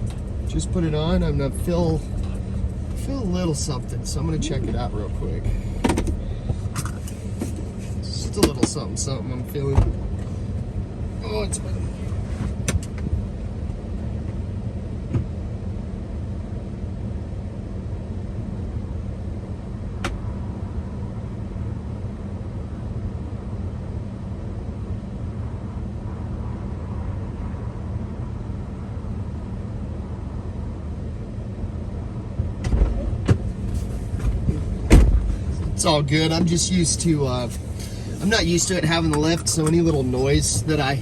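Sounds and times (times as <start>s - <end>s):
suspension knocks: 0.0s - 8.9s, 32.6s - 41.0s
engine and tyre rumble: 0.0s - 41.0s.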